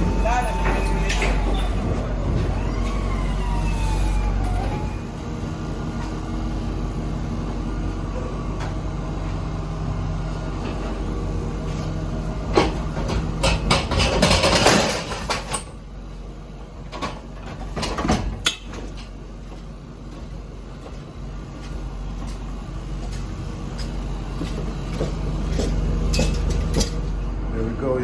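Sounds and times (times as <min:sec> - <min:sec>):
low engine hum: 0:00.0 - 0:14.4, 0:15.1 - 0:28.0
knocks and rattles: 0:12.5 - 0:15.8.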